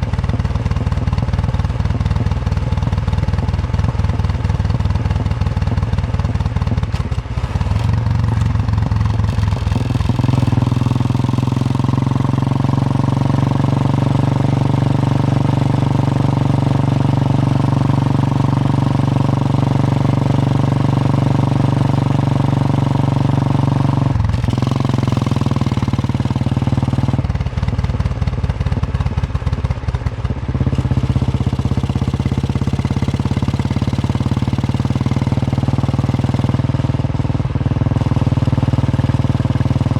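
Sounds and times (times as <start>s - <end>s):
motorcycle engine thumping: 0.1s - 10.7s.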